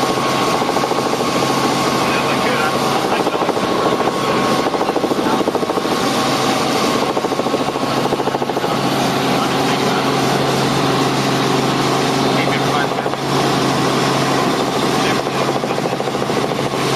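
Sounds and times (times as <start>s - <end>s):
helicopter rotor chop: 0.0s - 16.9s.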